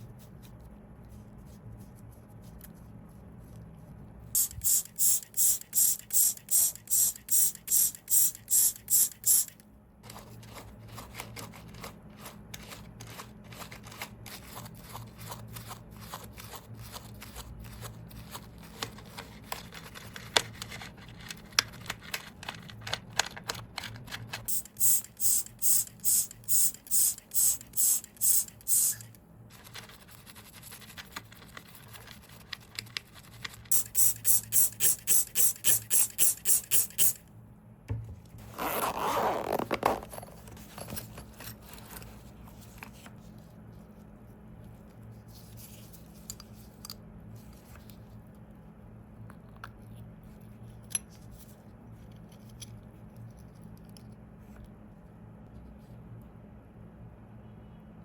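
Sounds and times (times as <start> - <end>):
hissing tool strokes: 4.4 - 9.5, 24.5 - 29.1, 33.7 - 37.2.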